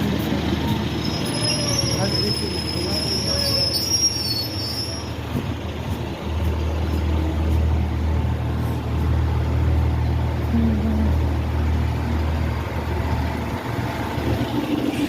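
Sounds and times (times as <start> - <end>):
low hum of train: 0.0 - 15.0
train wheel squeal: 0.6 - 5.4.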